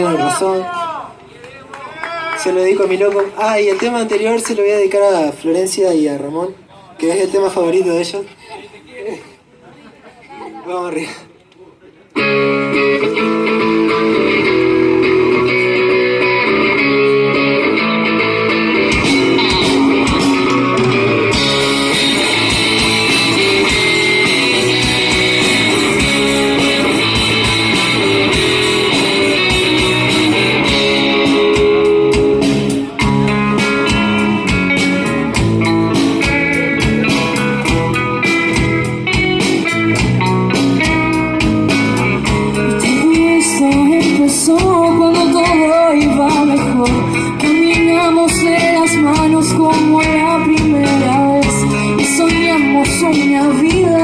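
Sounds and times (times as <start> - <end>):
electric guitar: 12.1 - 54.0
rock band playing: 12.2 - 54.0.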